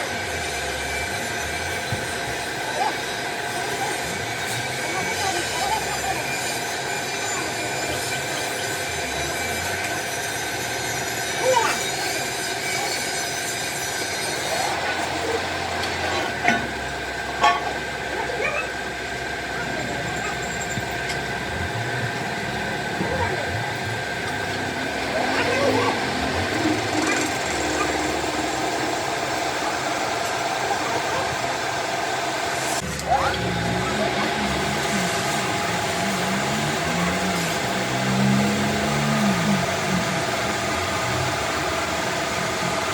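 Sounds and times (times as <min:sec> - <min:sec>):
metalworking machine whining: 0:00.0 - 0:42.9.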